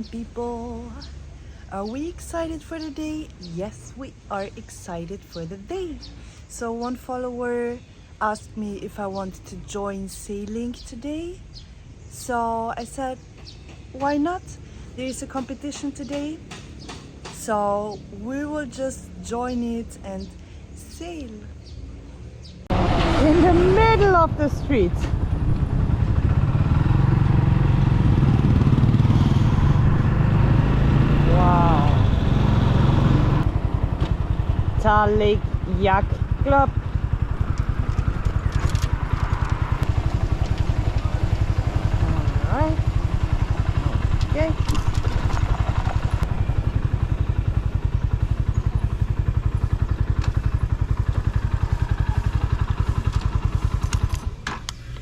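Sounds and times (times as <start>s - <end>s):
motorcycle engine running: 15.0s - 55.0s.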